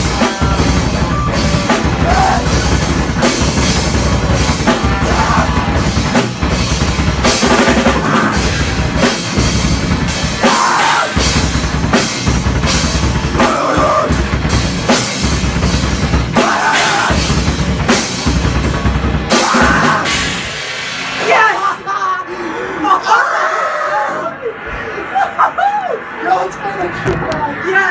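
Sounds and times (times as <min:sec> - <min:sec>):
bass drum: 0:00.0 - 0:20.7
live rock band: 0:00.0 - 0:21.7.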